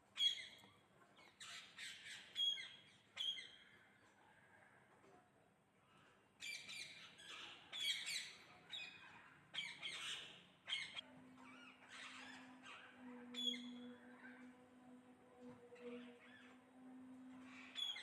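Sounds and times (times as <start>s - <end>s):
parrots squawking: 6.5s - 14.5s, 17.4s - 18.0s.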